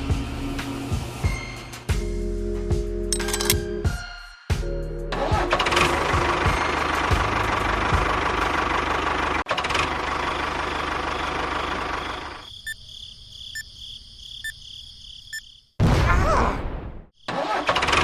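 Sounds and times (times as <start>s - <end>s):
engine running: 6.2s - 12.4s.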